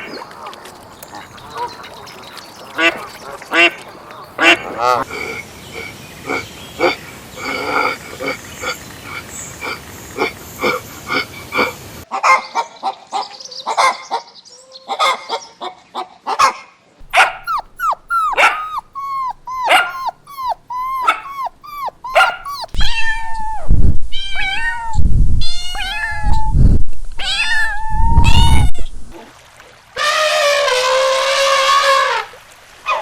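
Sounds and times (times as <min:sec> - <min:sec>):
animal calling: 0:17.0 - 0:22.8.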